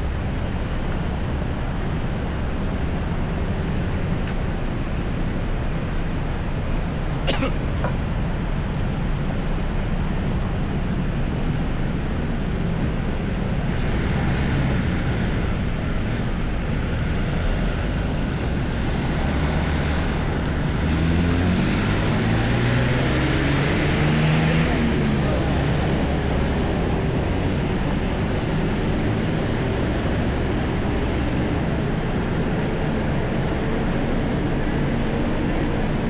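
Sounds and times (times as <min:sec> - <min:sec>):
vehicle engines running: 0:00.0 - 0:36.0
engine accelerating past: 0:19.0 - 0:26.3.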